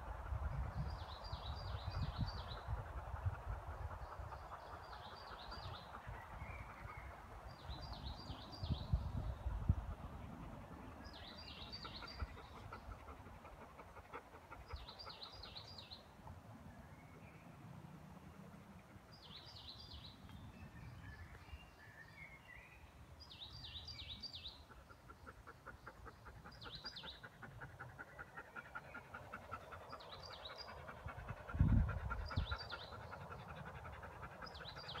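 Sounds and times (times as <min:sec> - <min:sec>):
birds chirping: 0:10.6 - 0:16.1, 0:16.7 - 0:35.0.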